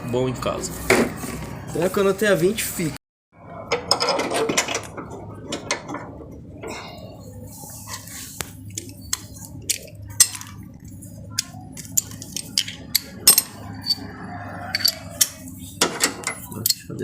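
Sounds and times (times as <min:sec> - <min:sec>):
metal wrenches clinking: 0:11.4 - 0:14.1, 0:14.7 - 0:17.0.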